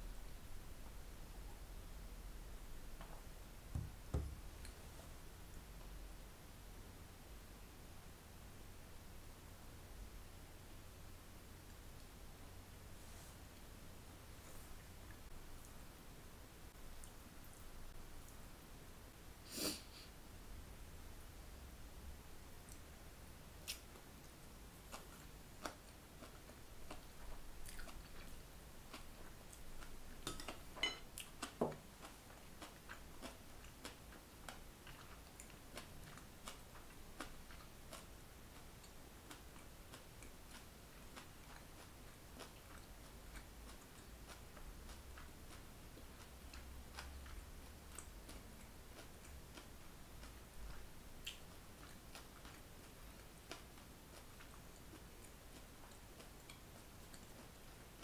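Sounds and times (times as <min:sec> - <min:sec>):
faint chewing: 0:16.8 - 0:18.4, 0:22.5 - 0:58.0.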